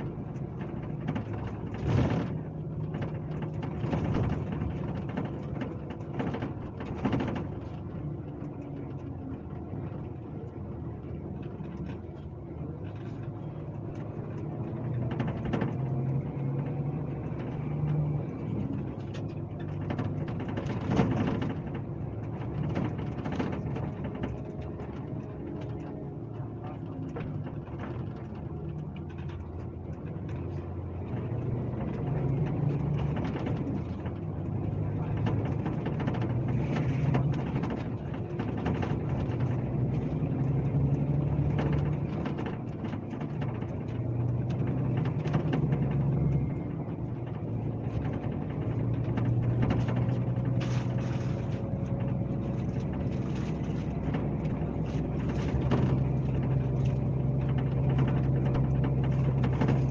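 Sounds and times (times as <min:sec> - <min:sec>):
bus diesel engine running: 0:00.0 - 0:59.9
road noise: 0:00.0 - 0:59.9.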